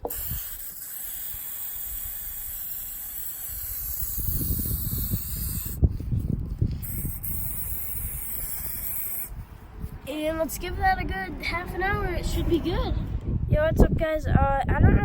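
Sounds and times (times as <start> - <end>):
aerosol can spraying: 0.0 - 9.4
low rumble: 9.3 - 14.8.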